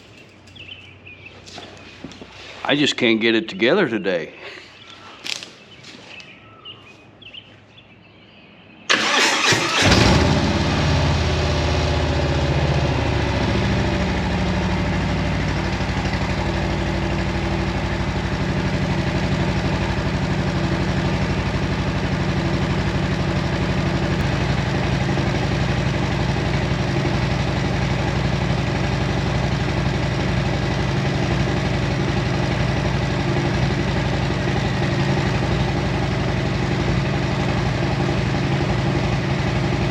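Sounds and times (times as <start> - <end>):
motorcycle engine idling: 0.0 - 2.2, 9.1 - 39.9
motorcycle engine starting: 8.9 - 39.9.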